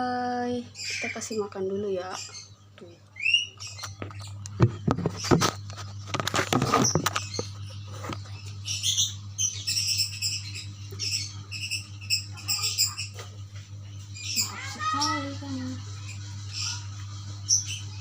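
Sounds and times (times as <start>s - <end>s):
owl squeaky calls: 0.8s - 2.6s, 3.2s - 4.0s, 8.6s - 13.2s, 14.2s - 15.3s.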